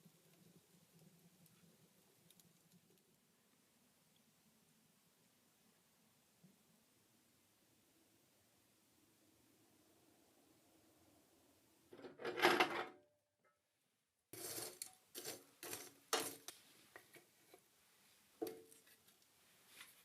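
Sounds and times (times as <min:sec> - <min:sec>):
scraping: 0:14.3 - 0:16.6.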